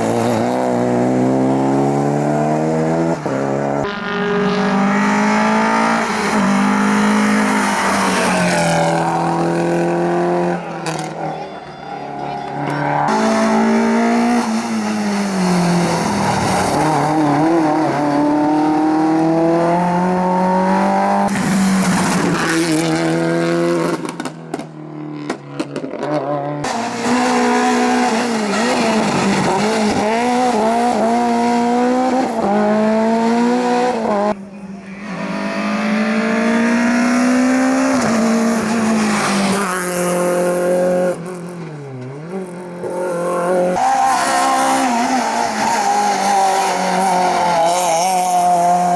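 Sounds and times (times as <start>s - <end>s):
rally car engines revving: 0.0s - 48.9s
tyre squeal: 26.8s - 30.0s.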